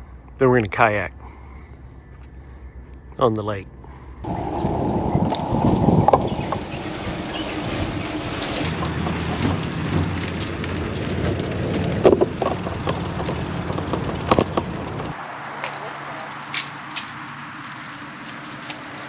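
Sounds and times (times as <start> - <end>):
wind rumbling on microphone: 0.0 - 15.2.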